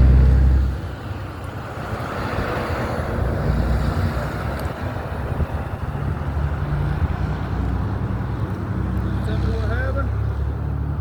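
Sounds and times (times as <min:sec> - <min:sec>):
wind buffeting microphone: 0:00.0 - 0:07.7
street traffic rumble: 0:00.0 - 0:11.0.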